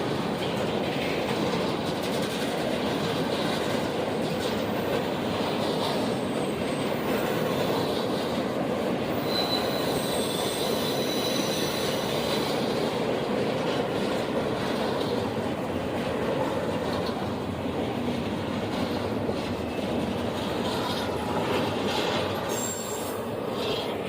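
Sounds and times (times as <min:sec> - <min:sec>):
railroad cars rolling on rails: 0:00.0 - 0:24.0
high-pitched wheel squeals: 0:09.1 - 0:12.7, 0:22.0 - 0:24.0.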